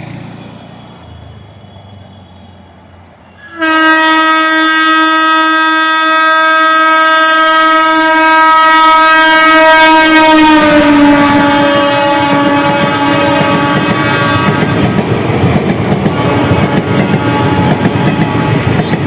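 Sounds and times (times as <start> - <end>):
train horn blast: 3.3 - 15.0, 16.0 - 19.0
train wheels clattering on track: 10.8 - 19.0.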